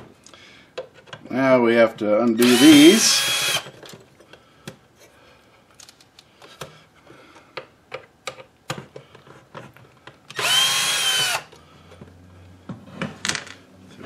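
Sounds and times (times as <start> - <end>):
cordless drill whining: 2.4 - 3.7, 10.3 - 11.5.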